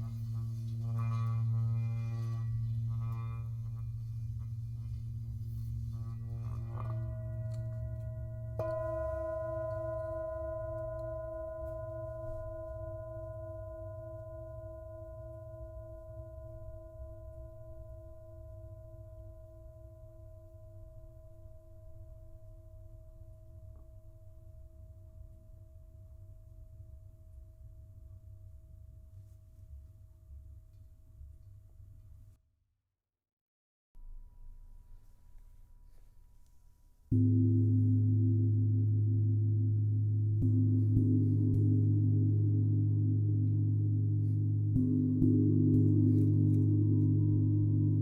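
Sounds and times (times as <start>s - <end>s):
low steady rumble: 0.0s - 13.2s, 37.1s - 48.0s
singing bowl ringing: 0.0s - 18.5s, 37.2s - 48.0s.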